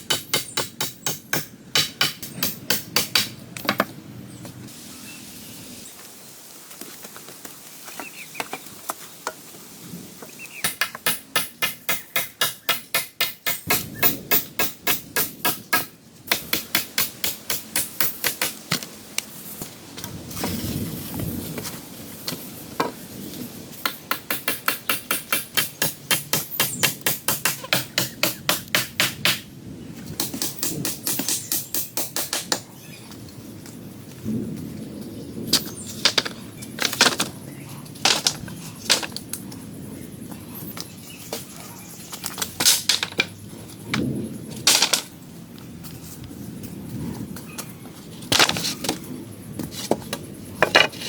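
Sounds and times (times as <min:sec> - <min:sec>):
fast tool strikes on wood: 0:00.0 - 0:03.3, 0:10.6 - 0:18.8, 0:23.8 - 0:29.4.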